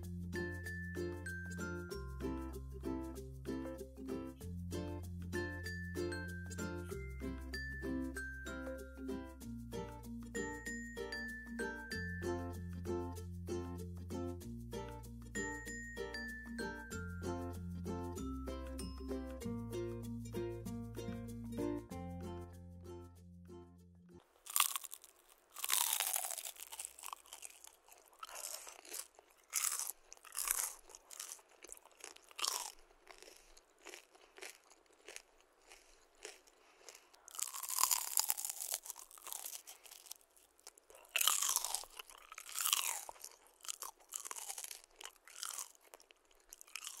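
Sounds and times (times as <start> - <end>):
light background music: 0.0 - 24.2
crunchy food bitten and chewed: 24.2 - 47.0.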